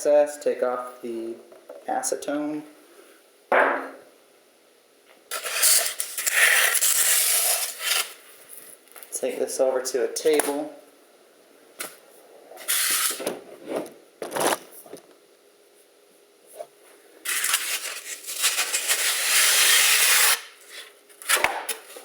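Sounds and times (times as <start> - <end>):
foam rubbing and scraping: 5.3 - 8.2, 12.6 - 13.9, 17.2 - 20.9.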